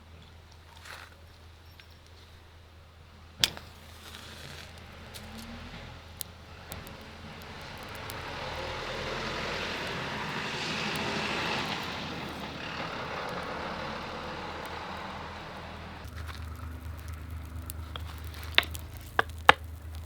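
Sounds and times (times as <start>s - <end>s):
faint crackles: 3.4s - 20.0s
distant engine drone passing: 4.7s - 20.0s.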